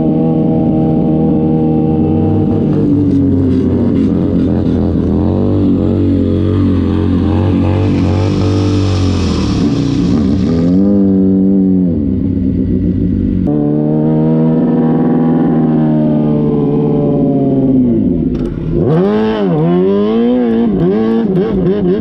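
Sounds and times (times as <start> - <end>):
motorcycle engine revving: 0.0 - 22.0
rushing hiss: 7.9 - 11.0.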